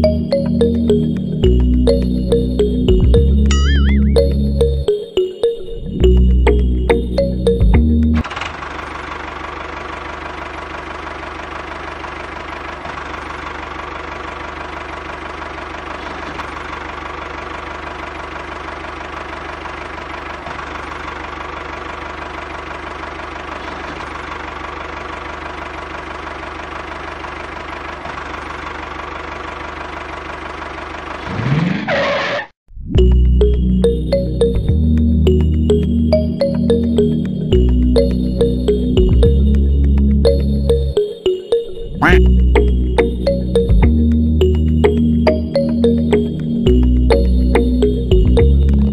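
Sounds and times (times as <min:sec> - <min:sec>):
engine rising sweep: 0:00.0 - 0:08.3
small engine idling: 0:06.0 - 0:31.4.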